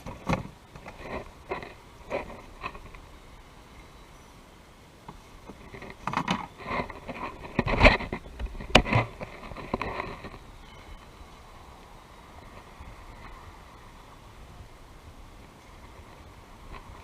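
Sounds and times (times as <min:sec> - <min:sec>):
scraping and rustling handling: 0:05.1 - 0:10.5.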